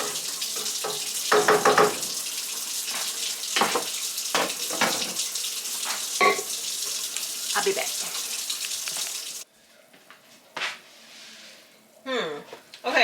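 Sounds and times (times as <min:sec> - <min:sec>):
kitchenware clinking: 0:00.0 - 0:02.2, 0:02.9 - 0:06.6
kitchen tap running: 0:00.0 - 0:09.5.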